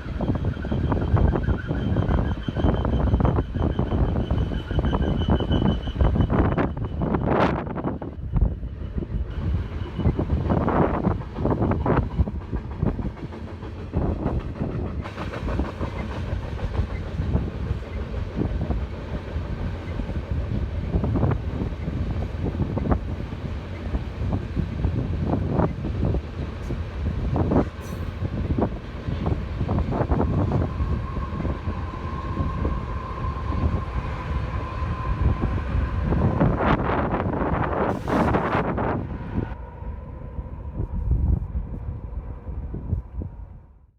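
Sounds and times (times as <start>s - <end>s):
train wheels rumbling on rails: 0.0s - 43.6s.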